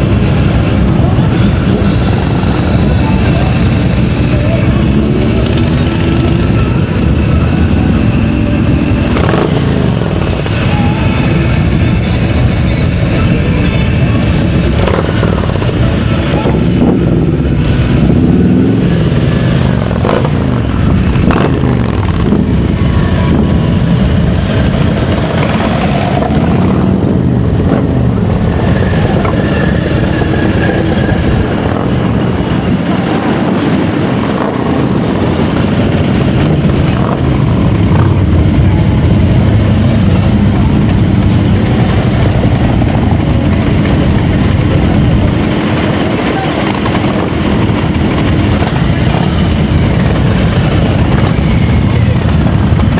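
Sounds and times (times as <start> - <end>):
motorcycles driving past: 13.9 - 52.9.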